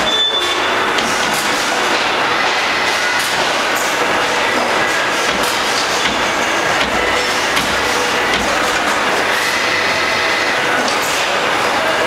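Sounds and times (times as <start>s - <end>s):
punch press clatter: 0.9s - 2.6s, 3.2s - 9.3s
sharp knocks: 4.6s - 9.0s.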